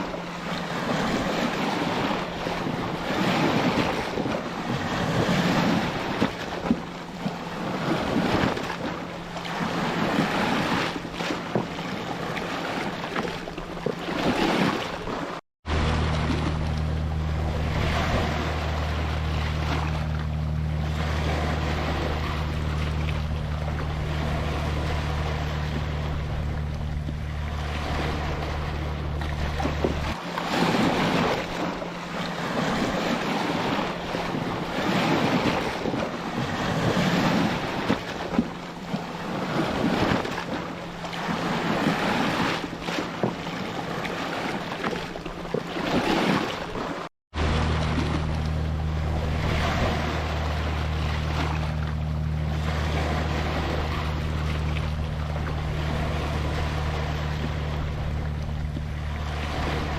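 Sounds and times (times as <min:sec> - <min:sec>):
ocean waves breaking on beach: 0:00.0 - 0:59.9
low steady drone: 0:15.7 - 0:44.0, 0:47.4 - 0:59.9.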